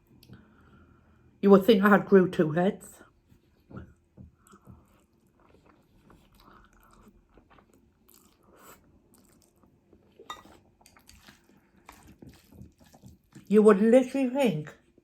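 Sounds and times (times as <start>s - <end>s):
person chewing food: 3.1s - 13.5s.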